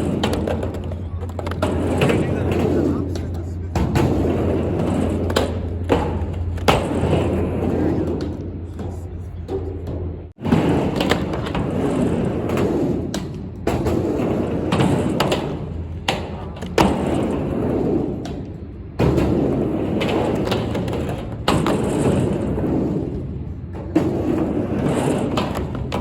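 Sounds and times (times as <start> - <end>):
skateboard knocking on ramp: 0.0 - 26.0
skateboard wheels rolling: 0.0 - 26.0.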